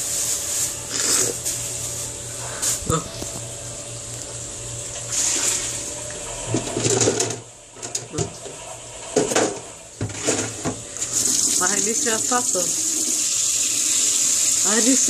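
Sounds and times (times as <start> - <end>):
washing machine low hum: 0.0 - 13.2
water flowing in hiss: 11.0 - 15.0.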